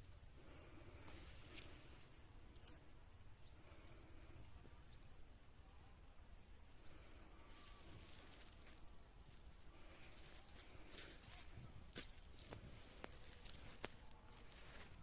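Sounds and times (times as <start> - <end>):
low outdoor hum: 0.0 - 15.0
small bird chirping: 3.4 - 3.8, 4.8 - 5.2.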